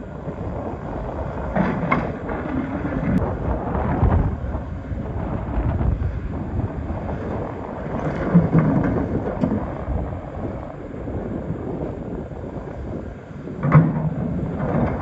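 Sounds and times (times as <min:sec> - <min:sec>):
excavator rumbling: 0:00.0 - 0:15.0.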